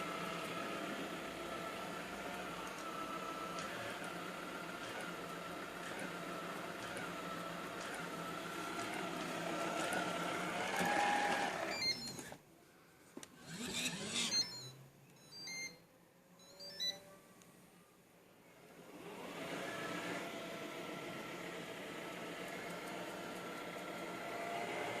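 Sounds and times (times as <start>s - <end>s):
robot vacuum cleaner whirring: 0.0s - 12.4s, 13.3s - 14.8s, 18.8s - 25.0s
faint short electronic beeps: 14.2s - 15.8s, 16.4s - 17.2s.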